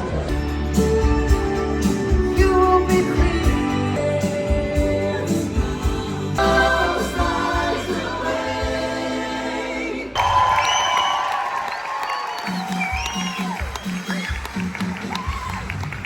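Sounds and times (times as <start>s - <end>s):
music with singing and deep bass: 0.0s - 10.2s.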